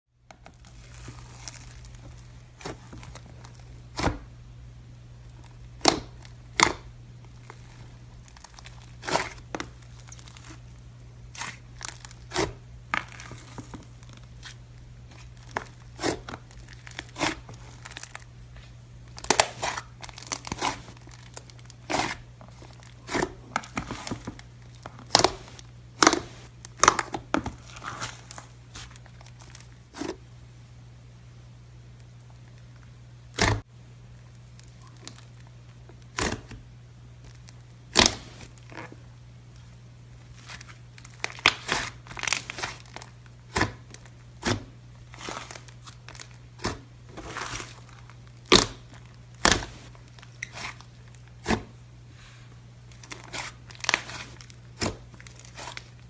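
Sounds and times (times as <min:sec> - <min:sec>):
slime popping and crackling: 0:40.5 - 0:51.5.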